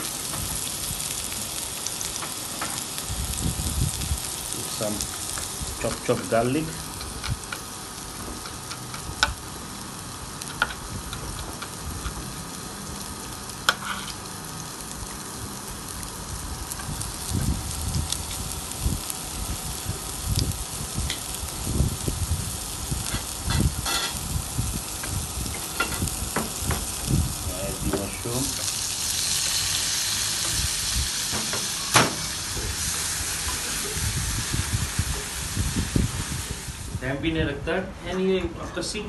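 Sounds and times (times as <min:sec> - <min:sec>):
onion and garlic sizzling in oil: 0:00.0 - 0:37.1.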